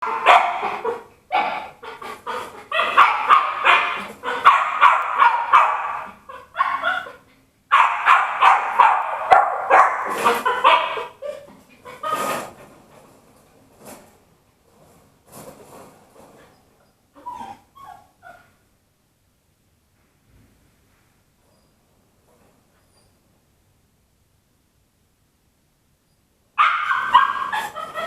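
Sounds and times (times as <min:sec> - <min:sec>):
puppy yapping and whining: 0:00.0 - 0:12.5, 0:16.8 - 0:18.6, 0:26.6 - 0:28.0.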